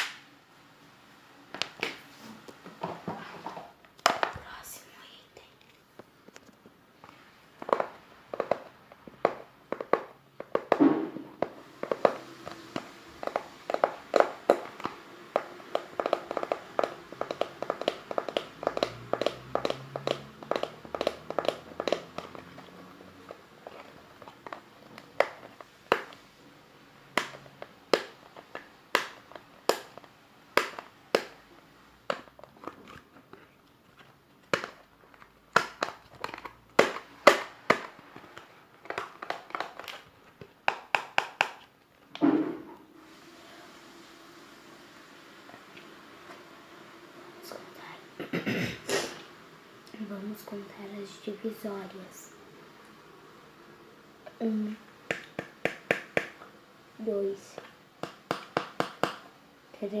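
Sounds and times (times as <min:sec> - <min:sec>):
tapping on a hard object: 0:15.4 - 0:22.5, 0:55.1 - 0:56.4.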